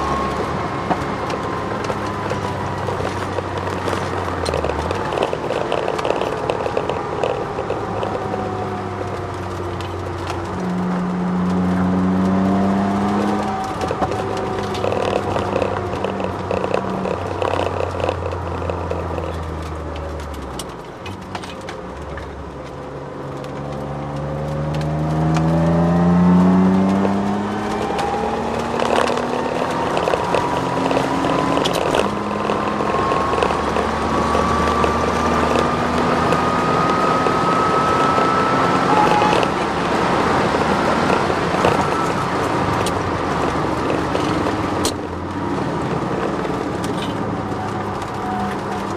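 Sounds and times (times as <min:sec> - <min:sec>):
car engine revving: 0:00.0 - 0:48.9
car knocking over bumps: 0:00.0 - 0:48.9
drivetrain whine: 0:00.0 - 0:48.9.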